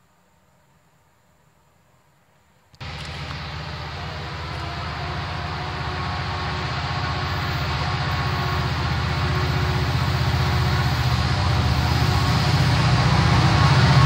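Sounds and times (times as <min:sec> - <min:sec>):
diesel locomotive engine pulsing: 0:02.8 - 0:14.0.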